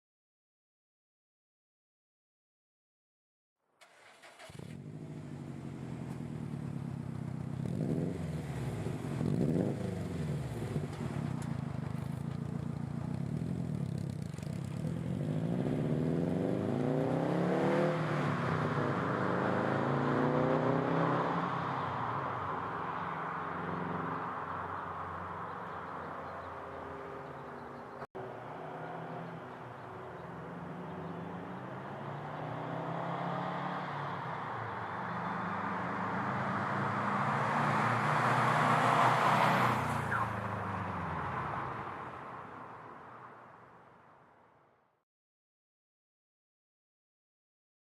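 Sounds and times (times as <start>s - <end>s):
car engine revving and accelerating: 4.2s - 12.4s, 13.0s - 26.0s, 28.2s - 41.8s.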